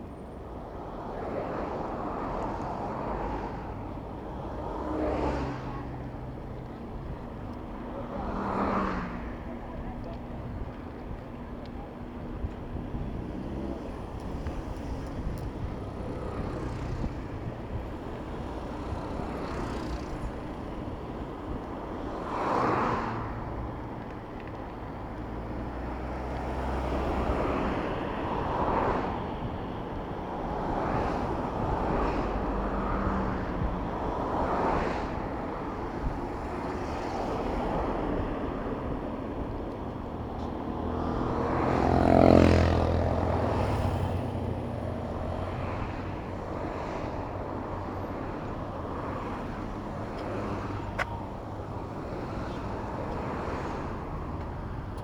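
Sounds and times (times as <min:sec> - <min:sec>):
road traffic rumble: 0:00.0 - 0:55.0
vehicles passing close by: 0:00.0 - 0:55.0.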